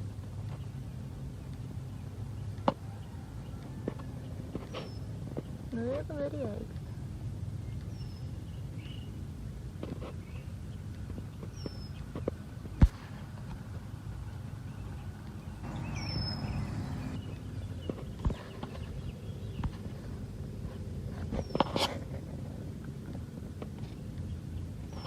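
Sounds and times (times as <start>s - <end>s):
steady low rumble: 4.1s - 25.0s
small bird chirping: 11.4s - 12.2s, 14.7s - 19.8s.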